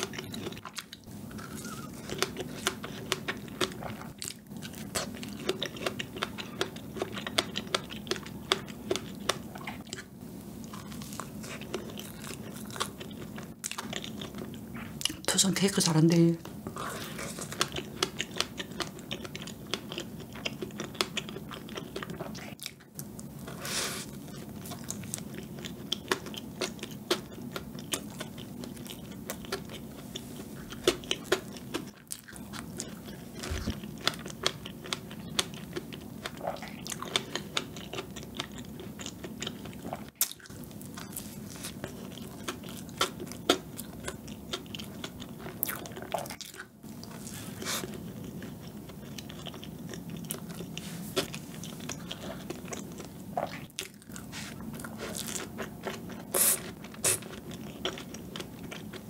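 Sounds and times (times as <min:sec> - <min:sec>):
wet chewing mouth sounds: 0:00.0 - 0:15.3, 0:16.6 - 0:59.0.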